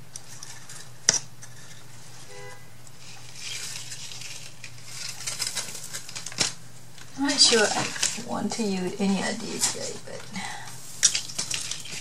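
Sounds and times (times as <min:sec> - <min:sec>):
steady low hum: 0:00.0 - 0:12.0
packaging rustling and rattling: 0:03.0 - 0:12.0.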